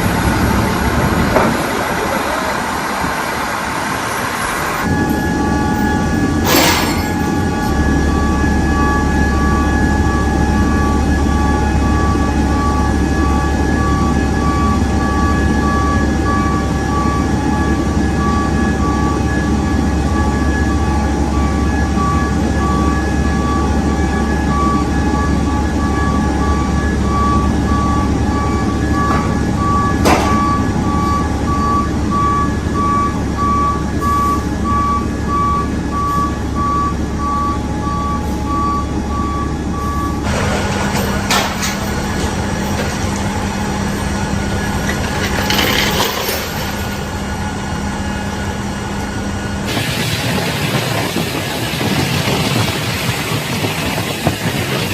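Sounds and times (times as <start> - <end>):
reversing alarm beeping: 0.0 - 54.8
low engine rumble: 0.0 - 54.9
low hum: 34.6 - 54.1.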